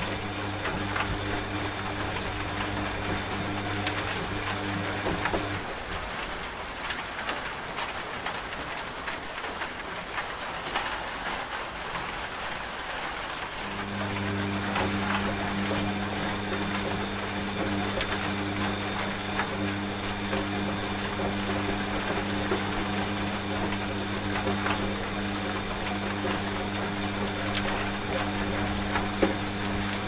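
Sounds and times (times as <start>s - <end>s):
washing machine humming: 0.0s - 6.4s, 13.2s - 30.0s
rain with drops tapping: 0.0s - 30.0s.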